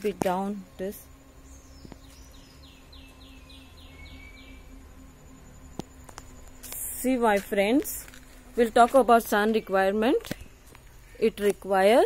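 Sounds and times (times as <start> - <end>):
faint outdoor background noise: 0.0 - 12.0
bird singing falling notes: 1.4 - 4.8.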